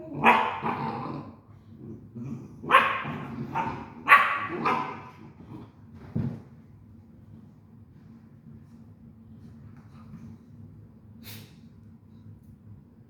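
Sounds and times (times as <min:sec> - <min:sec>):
dog barking loudly: 0:00.2 - 0:00.8, 0:02.7 - 0:05.1.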